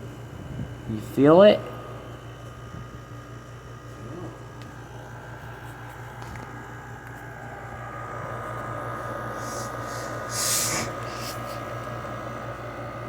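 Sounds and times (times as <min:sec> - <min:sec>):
window air conditioner running: 0:00.0 - 0:13.0
steady high tone: 0:06.6 - 0:13.0.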